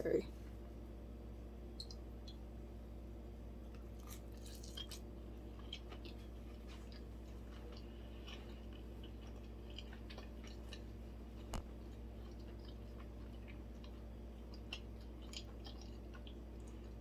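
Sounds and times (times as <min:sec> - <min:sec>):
steady low hum: 0:00.0 - 0:17.0
faint chewing: 0:03.7 - 0:17.0.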